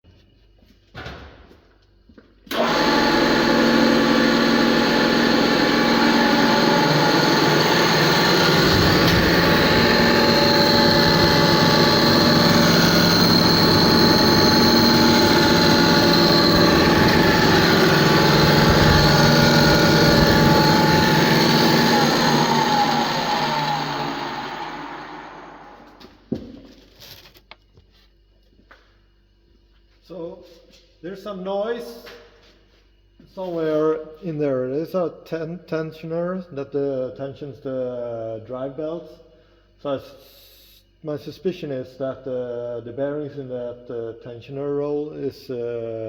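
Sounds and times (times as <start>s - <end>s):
sheet-metal machine motor running: 2.5s - 26.0s.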